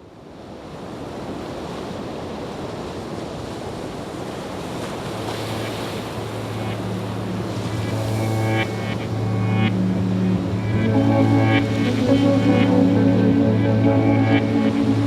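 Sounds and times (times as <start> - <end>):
steady rushing noise: 5.0 - 15.0
low steady hum: 6.0 - 15.0.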